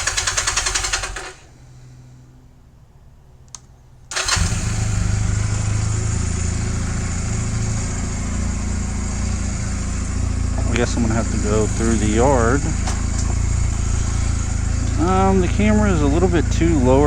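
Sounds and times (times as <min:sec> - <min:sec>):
motorcycle engine starting and running: 0:00.0 - 0:02.4, 0:03.2 - 0:17.0
click: 0:03.4 - 0:03.7
faint low hum: 0:05.0 - 0:17.0.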